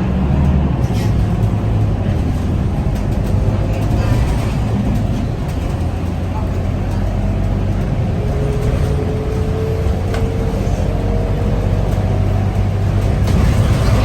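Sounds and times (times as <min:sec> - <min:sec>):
bus engine hum: 0:00.0 - 0:14.0.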